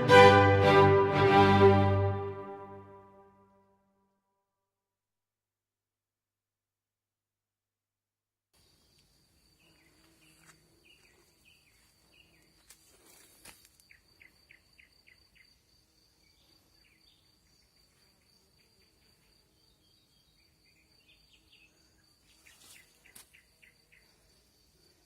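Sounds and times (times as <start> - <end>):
insect trill: 8.6 - 25.0.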